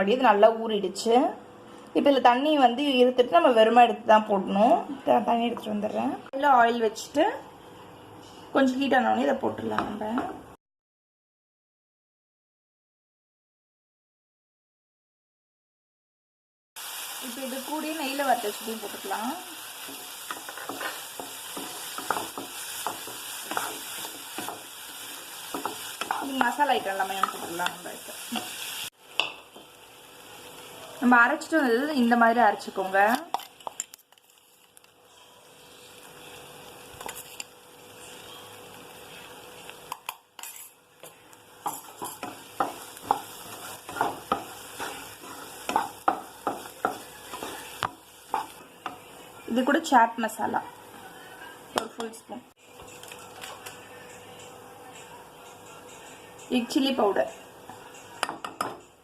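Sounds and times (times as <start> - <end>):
lentils sizzling in hot oil: 16.8 - 51.8
spatula scraping a pan: 19.8 - 28.8, 35.1 - 38.5, 41.7 - 48.7.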